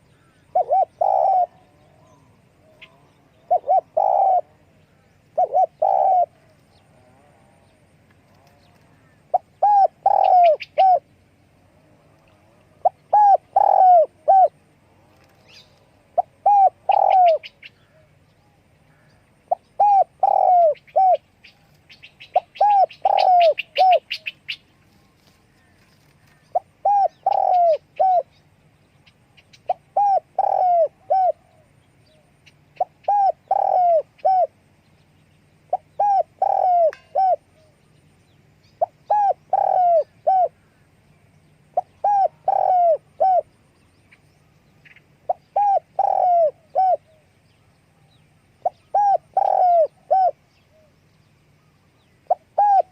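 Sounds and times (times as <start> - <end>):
dove cooing: 0.0 - 11.2, 12.0 - 18.2, 18.9 - 28.5, 29.4 - 34.8, 35.7 - 37.9, 38.7 - 41.0, 41.6 - 43.6, 44.9 - 51.0, 51.6 - 52.9
small bird chirping: 7.6 - 11.3, 15.2 - 52.9.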